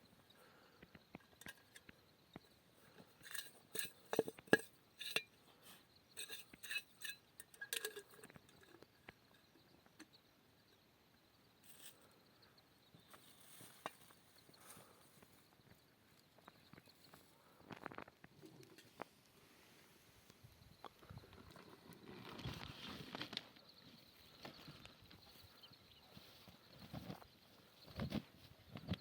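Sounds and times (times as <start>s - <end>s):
dishes and utensils clinking: 6.2s - 8.8s.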